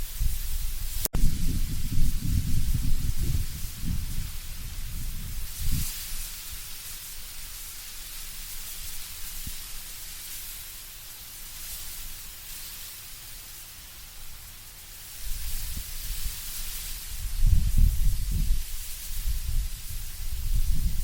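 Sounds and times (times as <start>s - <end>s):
low gusting wind rumble: 0.0s - 5.9s, 17.1s - 21.0s
leaves rustling in wind: 0.0s - 21.0s.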